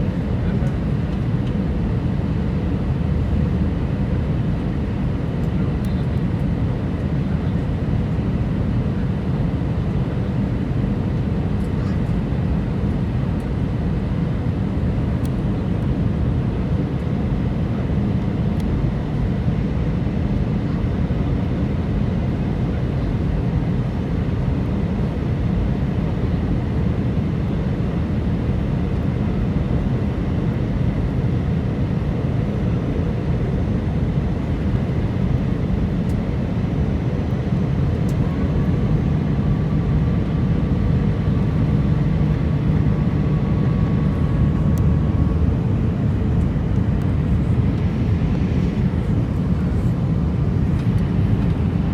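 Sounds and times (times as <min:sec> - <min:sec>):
jet engines rumbling: 0:26.1 - 0:51.9.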